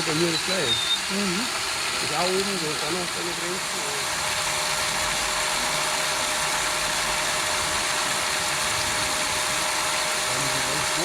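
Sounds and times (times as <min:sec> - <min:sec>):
small motors and gears whirring: 0:00.0 - 0:11.0.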